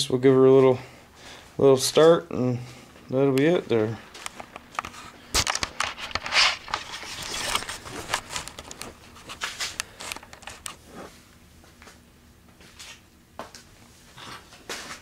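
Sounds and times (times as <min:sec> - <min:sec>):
handling noise: 0:03.4 - 0:11.2.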